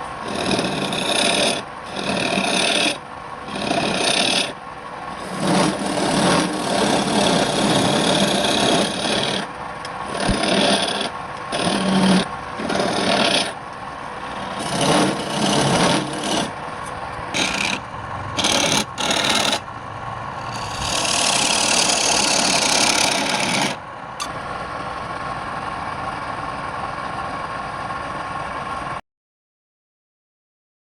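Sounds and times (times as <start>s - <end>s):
rasping rubbing on spinning wood: 0.2s - 13.6s, 14.2s - 16.6s, 17.3s - 19.7s, 20.3s - 23.8s
lathe motor hum: 0.2s - 27.9s.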